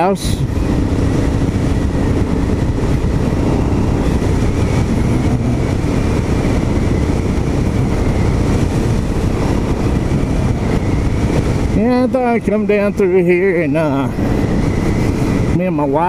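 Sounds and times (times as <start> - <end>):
wind and road noise: 0.0 - 16.0
motorcycle engine running: 0.5 - 11.8.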